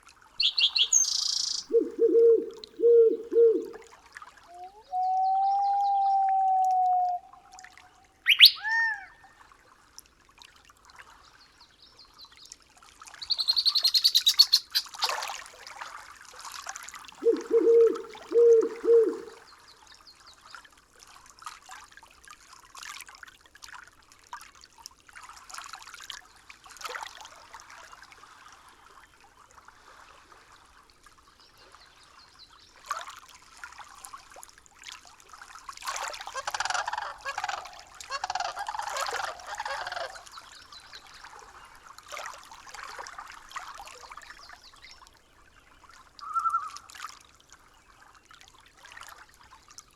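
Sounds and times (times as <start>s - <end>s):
faint trickle of water: 0.0s - 49.9s
bird calls: 0.4s - 3.8s, 4.5s - 7.6s, 8.2s - 9.1s, 13.2s - 15.1s, 17.2s - 19.4s, 36.3s - 40.5s.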